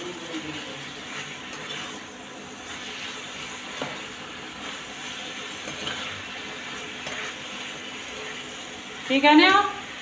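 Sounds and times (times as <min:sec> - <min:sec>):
peppers sizzling in a pan: 0:00.0 - 0:10.0.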